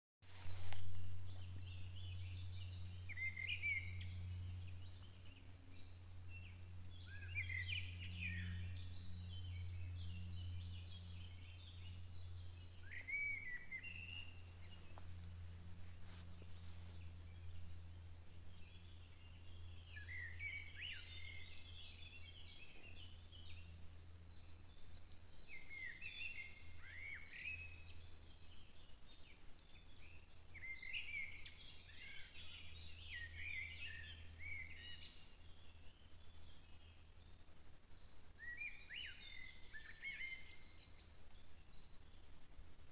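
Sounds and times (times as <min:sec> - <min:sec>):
songbirds chirping and trilling: 0:00.3 - 0:42.9
steady low hum: 0:00.3 - 0:42.9.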